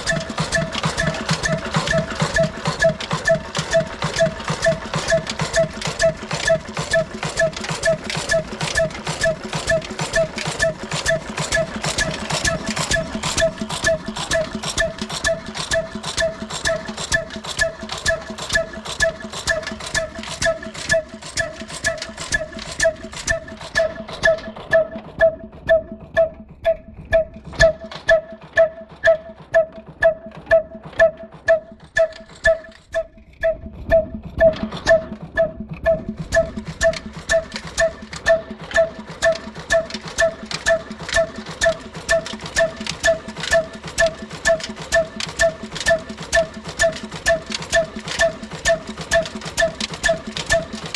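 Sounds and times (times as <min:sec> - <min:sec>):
diesel engine exhaust beating: 0:00.0 - 0:50.9.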